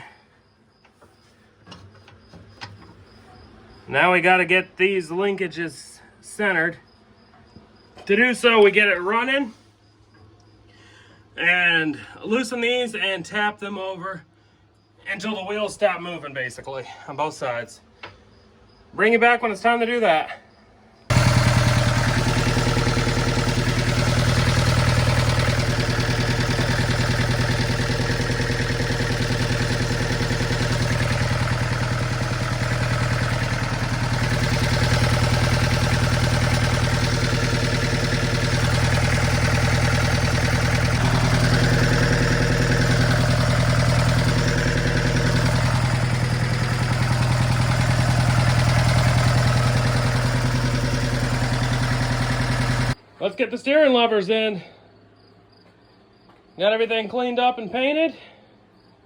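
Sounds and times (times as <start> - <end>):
diesel engine idling: 21.1 - 53.0.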